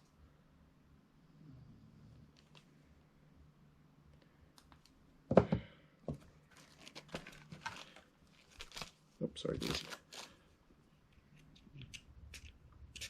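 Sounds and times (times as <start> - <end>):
knock on a desk: 5.3 - 5.7
rustling and crinkling: 6.1 - 13.0.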